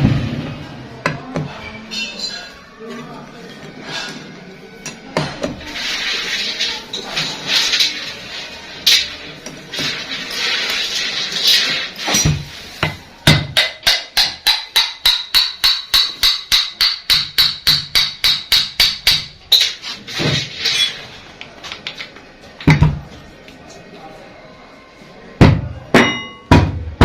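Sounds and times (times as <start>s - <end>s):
hammer striking metal: 12.1s - 19.8s, 25.4s - 27.0s.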